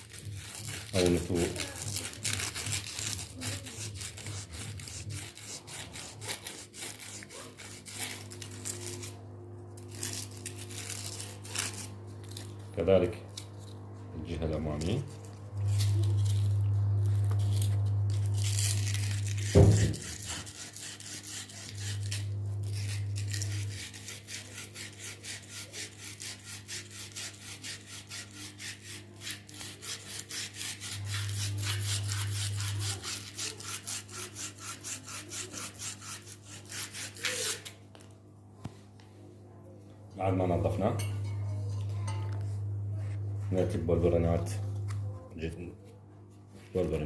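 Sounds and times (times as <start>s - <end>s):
low hum: 4.2s - 24.1s, 39.6s - 46.5s.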